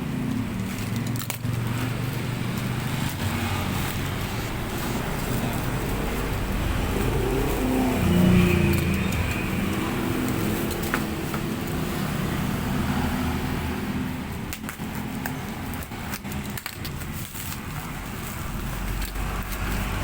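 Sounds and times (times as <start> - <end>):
vehicle engine running: 0.0 - 16.3.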